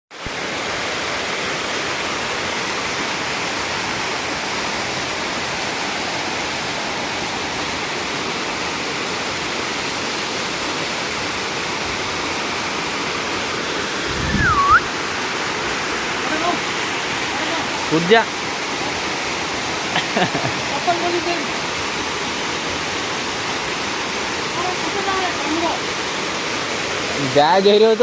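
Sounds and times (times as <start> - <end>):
waterfall rushing: 0.2 - 28.0
whistle-like sound dipping in pitch: 14.1 - 14.9.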